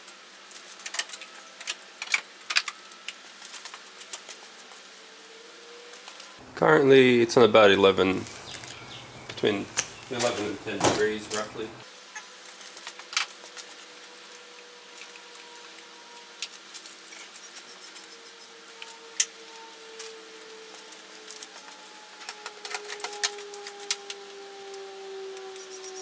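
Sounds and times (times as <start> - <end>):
faint hum: 6.4 - 11.8.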